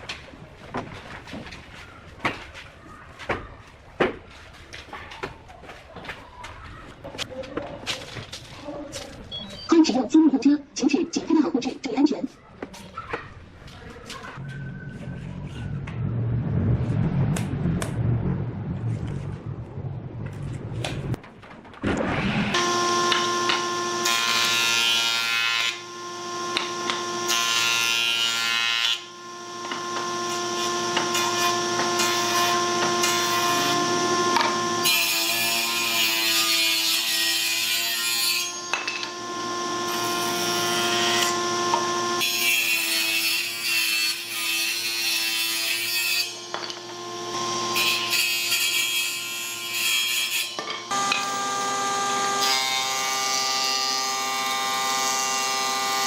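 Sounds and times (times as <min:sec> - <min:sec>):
power tool cutting wood: 0:22.2 - 0:56.0
power tool motor whine: 0:22.4 - 0:27.6, 0:29.0 - 0:35.1, 0:38.6 - 0:42.2, 0:46.4 - 0:47.8, 0:50.6 - 0:53.0.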